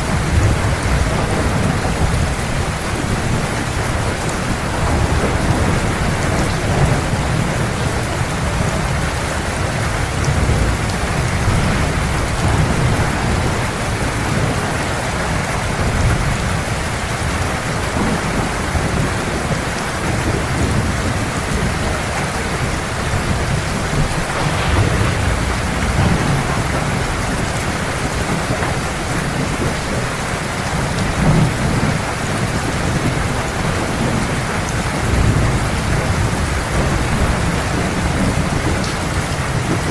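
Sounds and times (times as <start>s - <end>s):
thunder rumbling: 0.0s - 16.2s, 22.9s - 32.0s
heavy rain: 0.0s - 39.9s.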